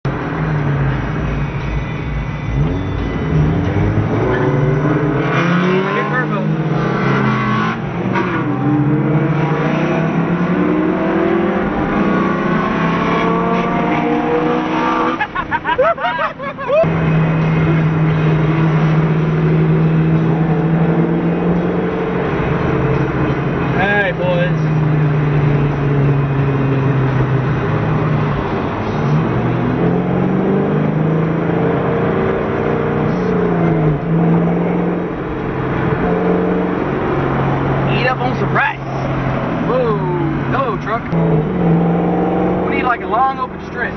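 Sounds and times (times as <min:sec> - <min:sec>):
car engine accelerating hard: 0:00.1 - 0:43.9.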